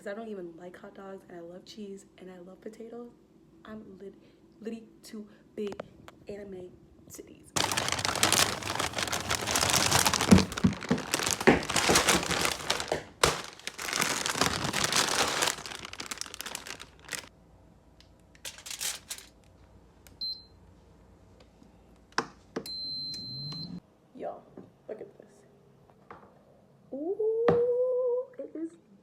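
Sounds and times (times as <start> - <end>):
plastic packaging crinkling: 7.6 - 17.3, 18.3 - 19.6
short electronic beep: 22.7 - 23.8.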